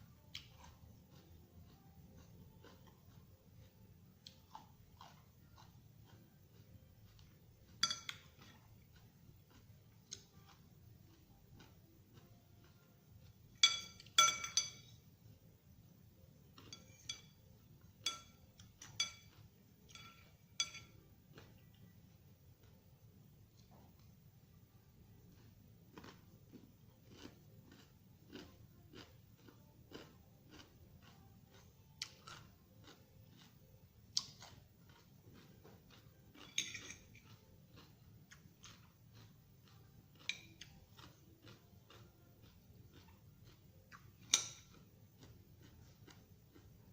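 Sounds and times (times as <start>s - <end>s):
crunchy chewing: 0.0s - 46.9s
utensil clinking against dish: 7.7s - 8.6s, 13.6s - 15.0s, 18.0s - 21.0s, 36.4s - 37.4s.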